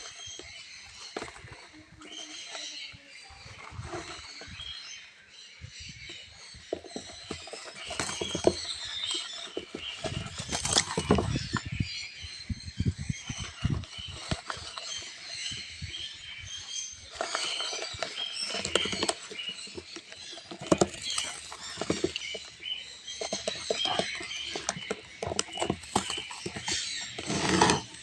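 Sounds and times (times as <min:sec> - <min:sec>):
chicks squeaking chirps: 0:00.0 - 0:28.0
scratchy rustling and clicking: 0:06.6 - 0:12.0, 0:13.0 - 0:28.0.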